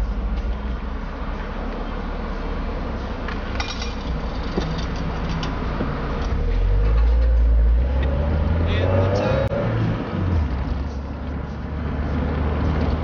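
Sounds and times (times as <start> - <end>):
car engine running: 10.1 - 13.0.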